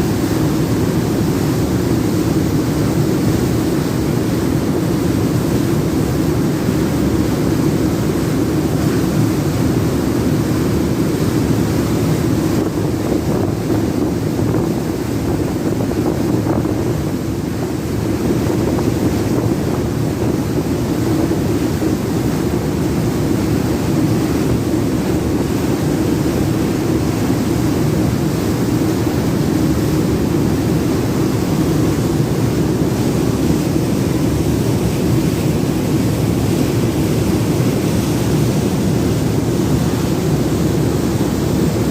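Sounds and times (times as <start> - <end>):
ferry waterjet rumble: 0.0 - 41.9
rushing water: 0.0 - 41.9
wind: 0.0 - 41.9.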